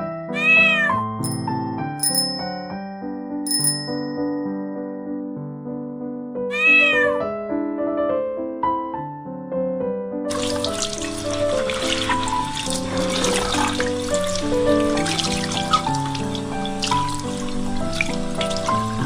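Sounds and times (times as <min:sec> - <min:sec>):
cat meowing: 0:00.2 - 0:01.1, 0:06.5 - 0:07.2
background music: 0:10.3 - 0:19.0
tap running water into sink: 0:10.3 - 0:19.0.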